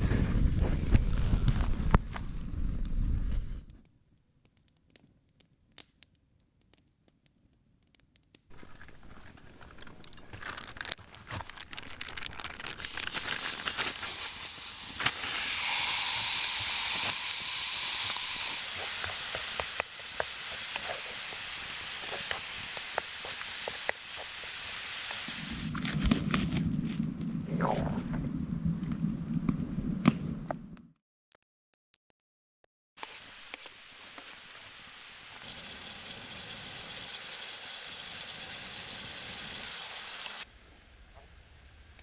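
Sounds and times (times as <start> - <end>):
campfire hissing and crackling: 8.5 - 27.3, 33.0 - 42.0.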